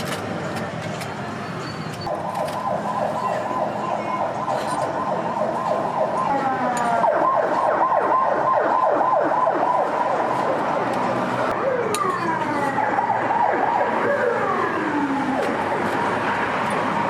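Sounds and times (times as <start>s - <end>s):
second siren tone: 2.0s - 10.3s
emergency vehicle siren: 2.0s - 17.0s.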